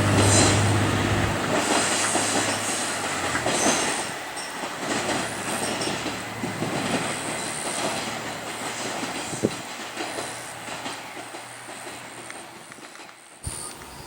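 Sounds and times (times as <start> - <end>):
train wheels clicking over rail joints: 0.0 - 14.0
faint high wheel squeal: 13.4 - 14.0.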